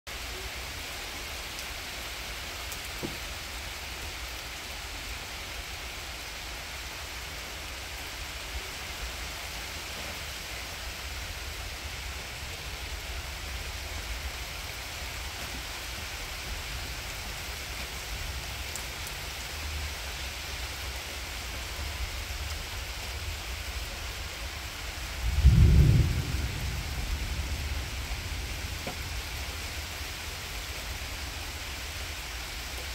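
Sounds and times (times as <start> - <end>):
rain falling: 0.1 - 32.9
low thunder rumble: 25.1 - 30.1.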